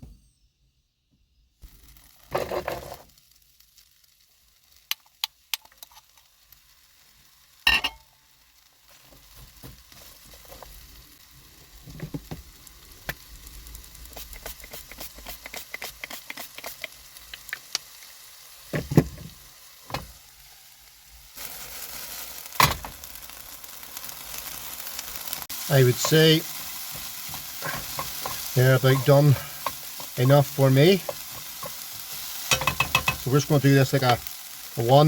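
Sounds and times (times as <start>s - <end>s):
vegetables sizzling in a pan: 1.6s - 35.0s
utensil knocking on pan: 32.5s - 33.2s.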